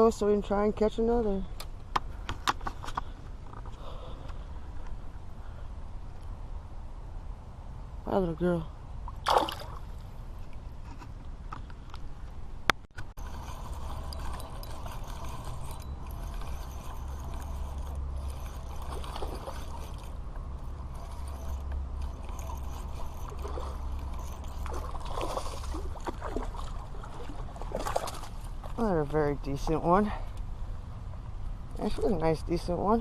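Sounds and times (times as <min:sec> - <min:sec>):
fishing reel being cranked: 0:13.2 - 0:26.0.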